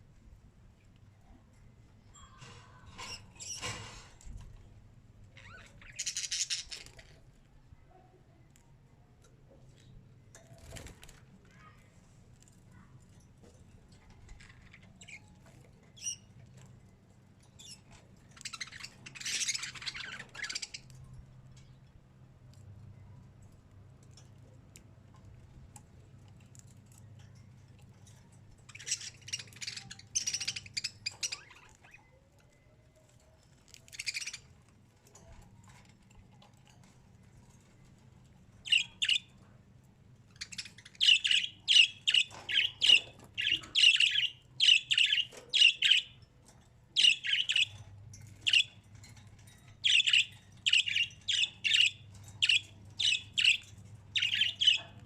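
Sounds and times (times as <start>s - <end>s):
faint low hum: 0.0s - 55.0s
bird chirping: 5.3s - 7.1s, 17.5s - 21.0s, 28.6s - 32.7s, 33.8s - 34.5s, 38.6s - 39.4s, 40.3s - 46.3s, 47.0s - 55.0s.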